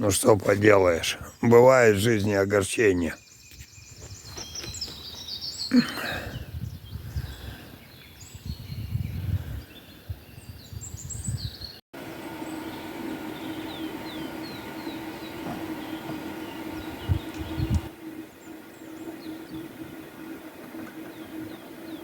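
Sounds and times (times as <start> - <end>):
small birds chirping: 0.8 - 22.0
wind rumbling on microphone: 6.2 - 11.8, 13.7 - 22.0
steady low hum: 12.0 - 22.0.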